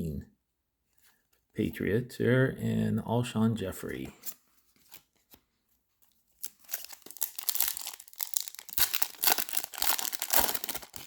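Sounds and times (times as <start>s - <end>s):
foil wrapper tearing and crinkling: 6.4s - 11.0s.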